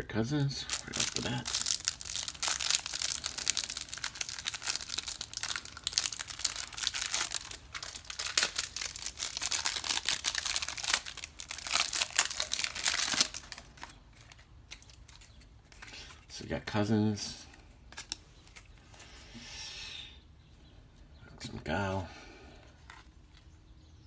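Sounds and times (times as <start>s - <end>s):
cards being handled: 0.6s - 16.3s, 17.9s - 19.1s
plastic wrapper crinkling: 0.6s - 16.3s.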